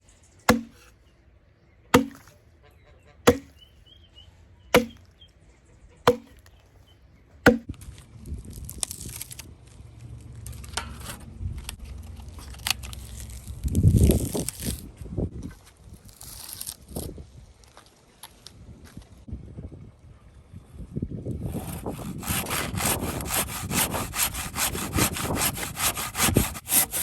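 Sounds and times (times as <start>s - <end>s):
axe chopping wood: 0.5s - 0.9s, 2.0s - 2.3s, 3.3s - 3.6s, 4.8s - 5.0s, 6.1s - 6.4s, 7.5s - 7.7s.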